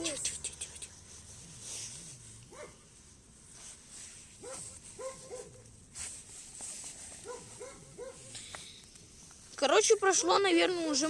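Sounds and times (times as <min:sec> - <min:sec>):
dog barking: 0:02.5 - 0:02.8, 0:04.4 - 0:05.7, 0:07.2 - 0:08.4.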